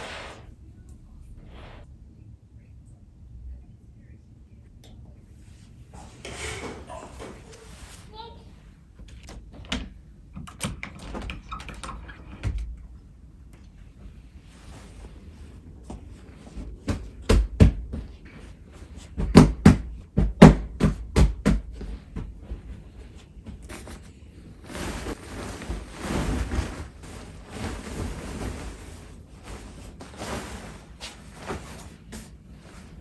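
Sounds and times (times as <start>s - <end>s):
steady rushing hiss: 0.0s - 0.5s.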